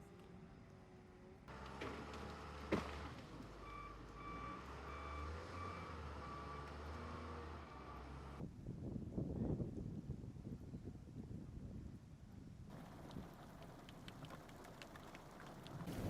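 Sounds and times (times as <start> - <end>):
reversing alarm beeping: 3.6 - 6.7
low engine hum: 12.7 - 16.0.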